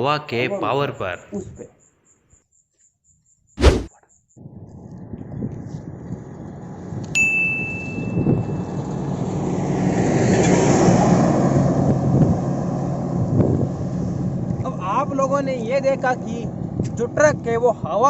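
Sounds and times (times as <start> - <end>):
short high ding: 7.2 - 8.4
truck passing close by: 8.4 - 15.2.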